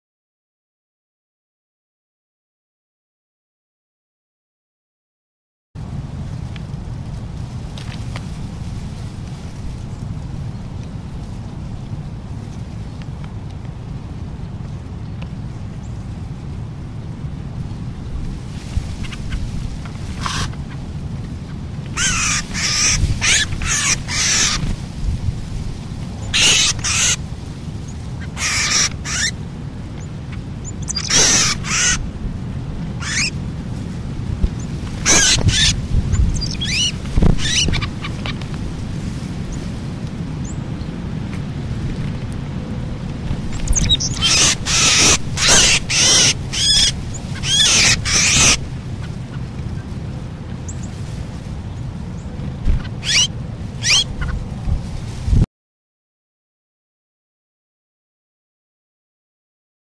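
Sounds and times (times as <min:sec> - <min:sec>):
steady low rumble: 0:05.8 - 0:55.5
birds giving harsh calls: 0:20.1 - 0:20.8, 0:21.9 - 0:24.8, 0:26.2 - 0:27.2, 0:28.2 - 0:29.4, 0:30.3 - 0:32.1, 0:33.0 - 0:33.3, 0:34.6 - 0:38.5, 0:43.5 - 0:49.9, 0:52.2 - 0:54.4.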